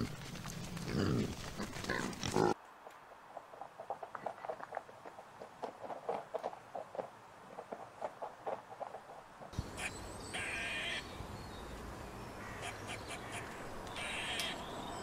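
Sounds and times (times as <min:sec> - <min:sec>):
pig grunting: 0:00.8 - 0:02.6.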